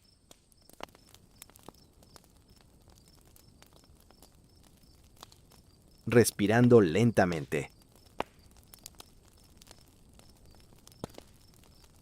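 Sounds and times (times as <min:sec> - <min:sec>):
cricket chirping: 0:00.0 - 0:06.4
campfire crackling: 0:00.0 - 0:12.0.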